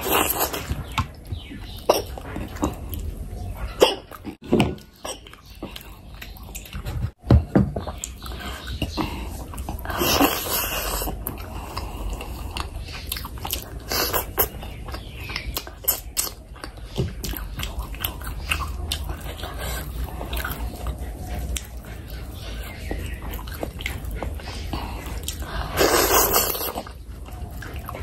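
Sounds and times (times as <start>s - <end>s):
chewing and wet lip smacks: 7.9s - 28.0s.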